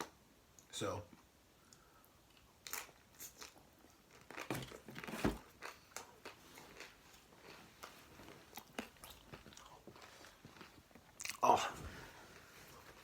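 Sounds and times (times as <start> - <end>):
chewing with mouth clicks: 5.6 - 11.4.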